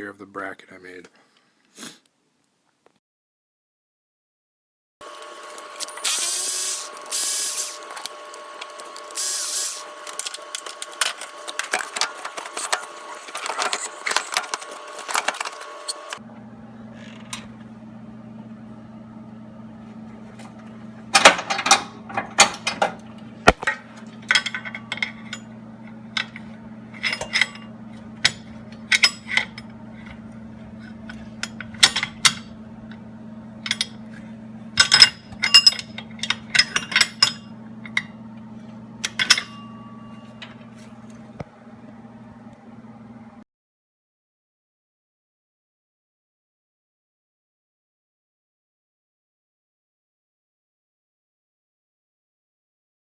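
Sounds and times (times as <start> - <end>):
steady machine whine: 5.0 - 43.4
tools clicking and clanking: 21.1 - 25.5, 26.2 - 30.2, 33.6 - 34.0, 34.8 - 38.1, 39.0 - 39.7.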